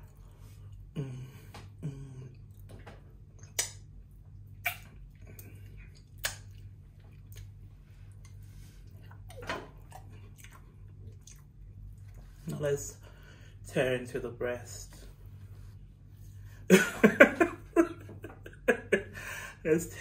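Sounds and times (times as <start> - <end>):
steady low hum: 0.0 - 20.0
mouth clicks and lip smacks: 3.4 - 7.6
man chewing chips: 4.4 - 12.3.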